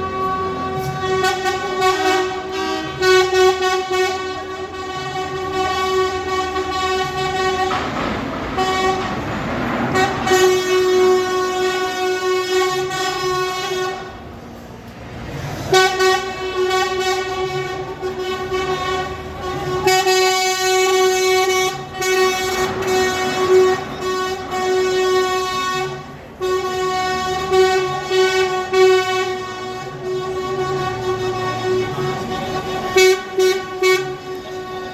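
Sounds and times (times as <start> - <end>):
truck air horns blasting: 0.0 - 14.6, 15.2 - 34.9
rushing noise: 0.0 - 26.4.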